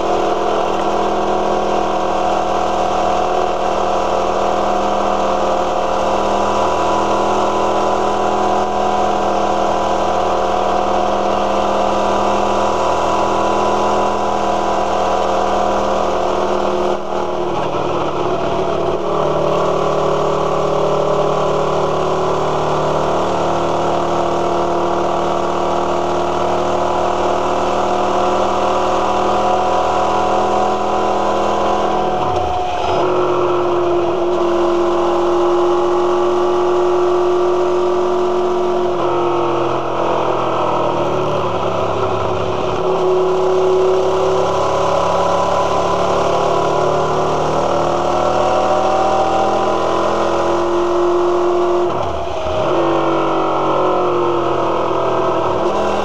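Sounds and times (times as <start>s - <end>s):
motorcycle engine running: 0.0s - 21.8s.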